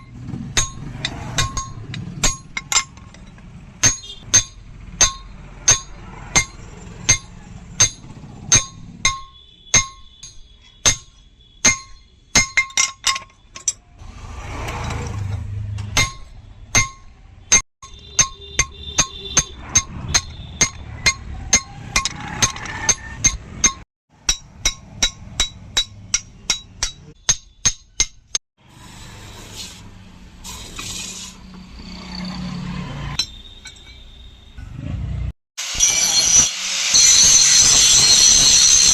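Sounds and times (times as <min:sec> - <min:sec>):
hammer striking steel on anvil: 0:00.0 - 0:13.8, 0:15.4 - 0:28.4, 0:33.2 - 0:34.0.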